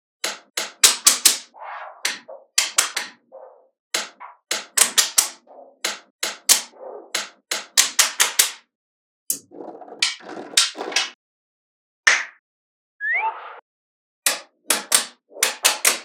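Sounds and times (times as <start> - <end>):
magnetic balls snapping together: 0.2 - 1.5, 2.1 - 3.2, 4.0 - 8.6.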